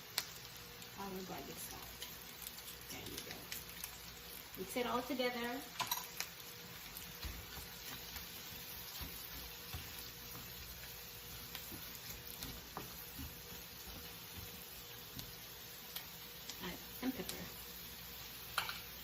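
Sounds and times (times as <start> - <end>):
vegetables sizzling in a pan: 0.0 - 19.0
utensil tapping and scraping: 7.0 - 15.3.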